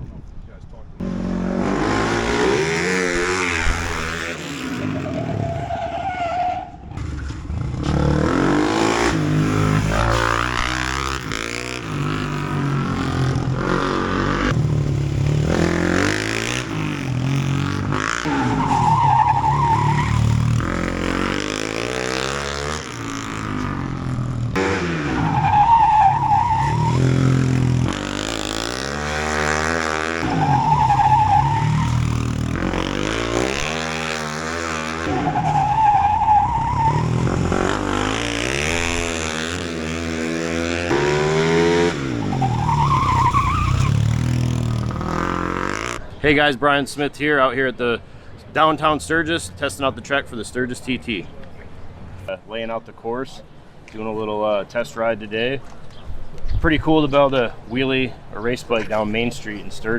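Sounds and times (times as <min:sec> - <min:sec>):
motorcycle engine revving: 0:01.0 - 0:46.0.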